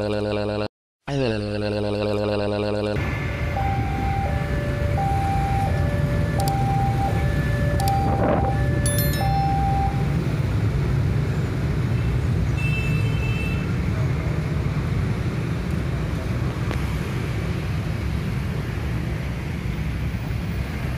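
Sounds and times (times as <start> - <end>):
brief high tone: 7.9 - 10.2
short electronic chime: 8.8 - 10.2.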